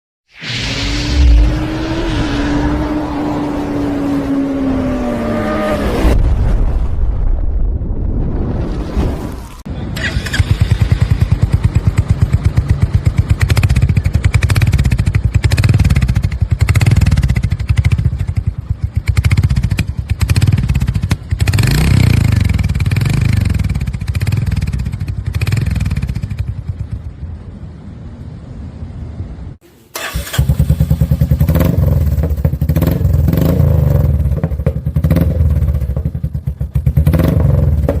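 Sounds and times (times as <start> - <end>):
motorcycle engine revving: 0.8 - 6.2, 10.0 - 27.2, 30.0 - 38.0.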